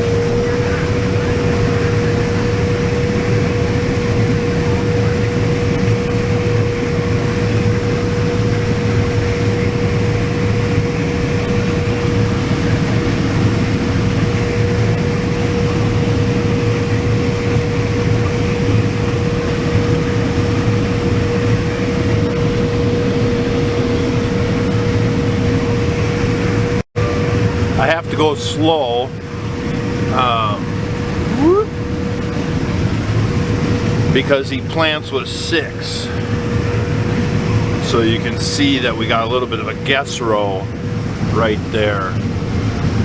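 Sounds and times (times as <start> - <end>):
combine harvester engine drone: 0.0 - 43.0.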